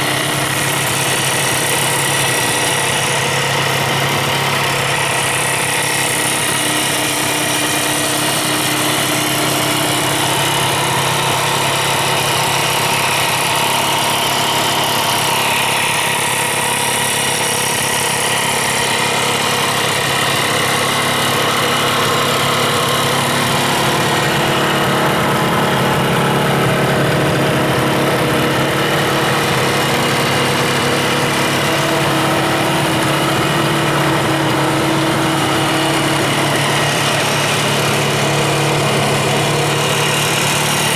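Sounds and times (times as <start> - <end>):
two-stroke motorcycle engine idling: 0.0 - 40.9.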